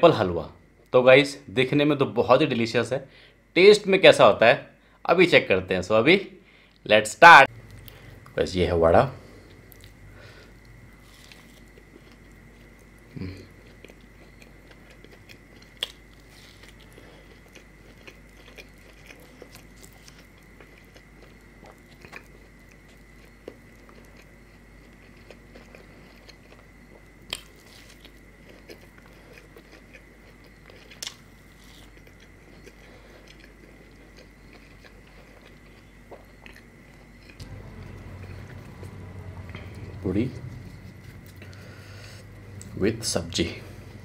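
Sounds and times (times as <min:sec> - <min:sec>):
biting and chewing: 0:09.2 - 0:44.0
faint high-pitched tone: 0:37.4 - 0:44.0.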